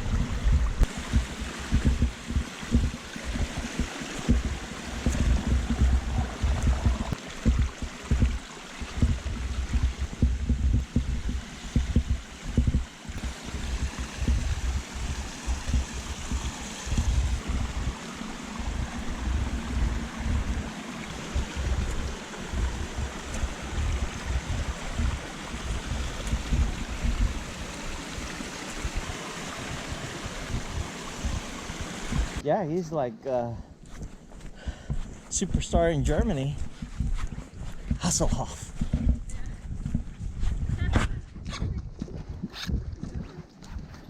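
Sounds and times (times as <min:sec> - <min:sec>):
low rumbles: 0:00.0 - 0:32.4
stream water rushing: 0:00.0 - 0:32.4.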